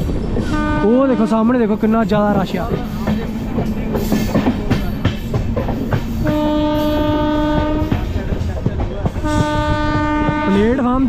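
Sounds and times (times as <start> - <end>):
train horn blast: 0.4 - 1.6, 6.2 - 8.1, 9.2 - 11.0
train wheels clattering: 1.1 - 11.0.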